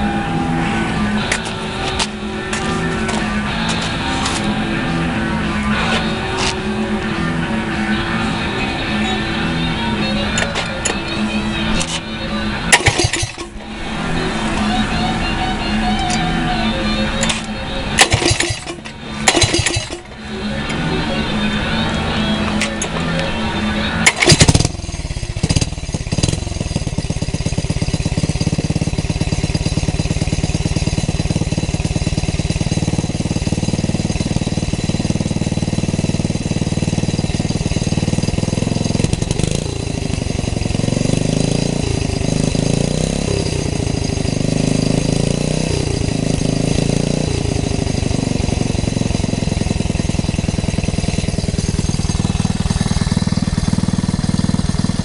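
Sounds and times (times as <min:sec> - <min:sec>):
engine running: 0:00.0 - 0:55.0
engine starting with loud bangs: 0:12.7 - 0:13.6, 0:17.2 - 0:20.1, 0:24.0 - 0:27.0.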